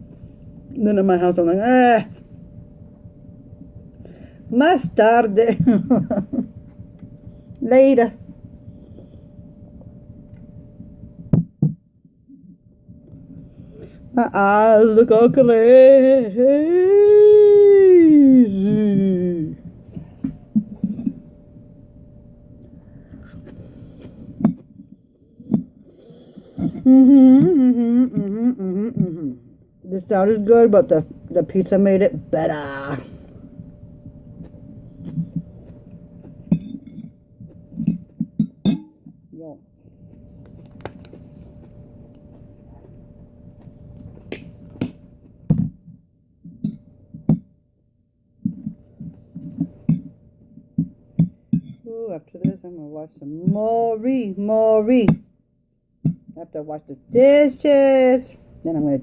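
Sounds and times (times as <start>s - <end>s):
person humming: 15.7s - 19.7s, 26.6s - 29.6s
soft chewing: 33.1s - 38.4s, 39.7s - 45.4s
chewing: 40.1s - 44.6s.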